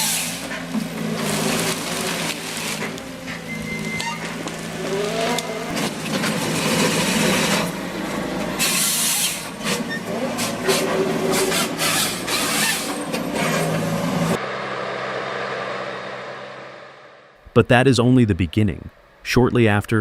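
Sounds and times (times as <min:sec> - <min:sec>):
sawing and stripping noise: 0:00.0 - 0:14.4
harvester engine running: 0:00.0 - 0:19.2.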